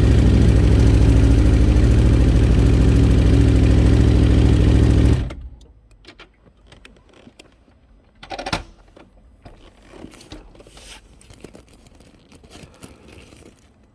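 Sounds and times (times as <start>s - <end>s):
motorcycle engine stopping: 0.0s - 5.7s
small clicks and scrapes: 5.9s - 13.9s.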